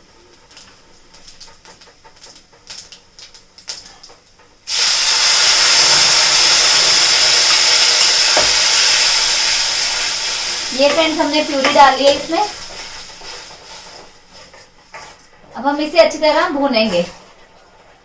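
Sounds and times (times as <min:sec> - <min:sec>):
seeds crackling in hot oil: 0:00.0 - 0:17.1
loud steady sizzle: 0:00.0 - 0:17.9.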